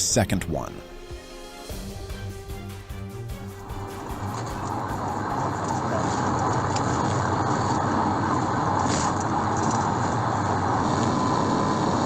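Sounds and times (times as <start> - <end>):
car driving at high speed: 3.7 - 12.0.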